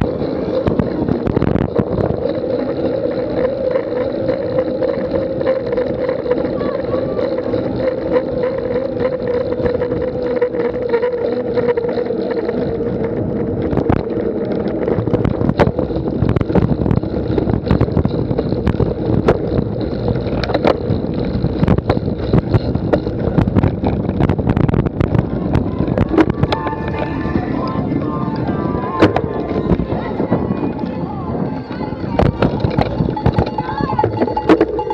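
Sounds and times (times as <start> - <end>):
motor hum: 0.0 - 34.9
wind noise on microphone: 0.0 - 34.9
sharp clicks and knocks: 7.2 - 30.0, 31.7 - 34.9.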